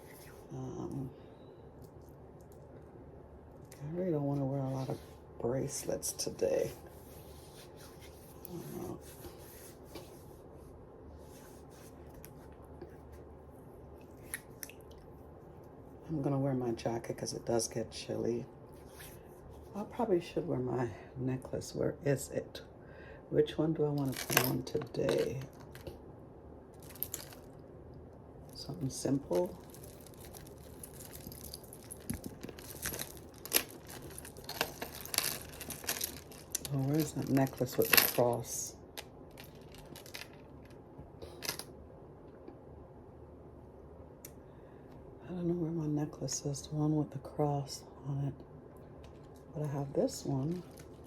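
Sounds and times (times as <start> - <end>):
jewelry clicking and clinking: 29.4 - 38.4.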